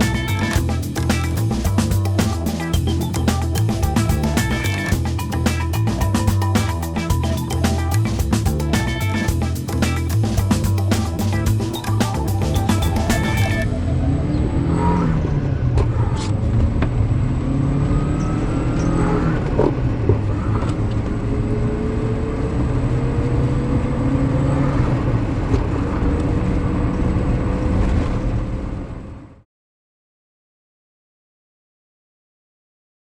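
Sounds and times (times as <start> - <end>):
tone rising in pitch: 0.0 - 15.8.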